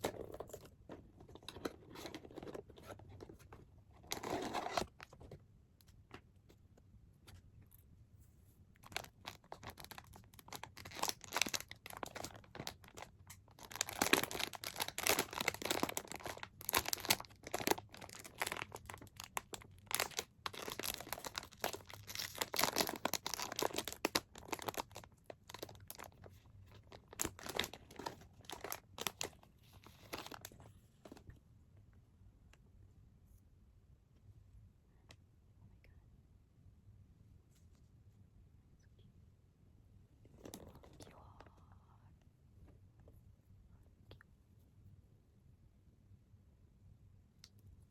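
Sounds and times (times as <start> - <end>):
packaging tearing and crinkling: 8.9 - 26.1, 26.9 - 29.4.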